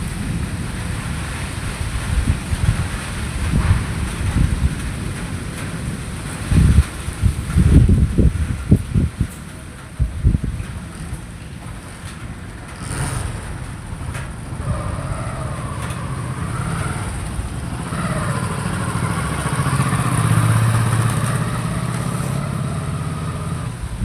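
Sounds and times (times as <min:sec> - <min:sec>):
vehicle engine passing by: 0:12.8 - 0:24.0.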